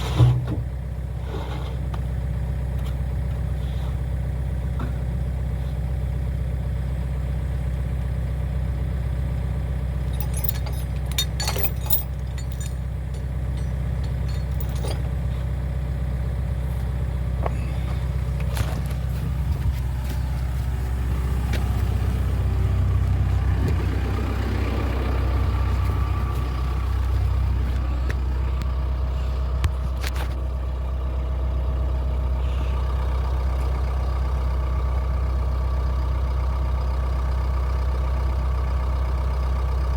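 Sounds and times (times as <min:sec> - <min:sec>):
diesel engine running: 0:00.0 - 0:39.9
sharp clicks and knocks: 0:10.2 - 0:15.1.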